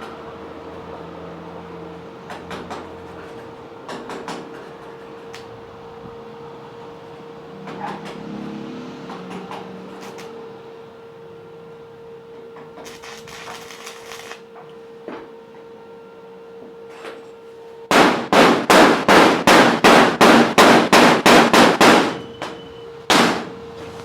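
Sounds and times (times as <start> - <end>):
hammer striking metal: 17.9 - 23.6.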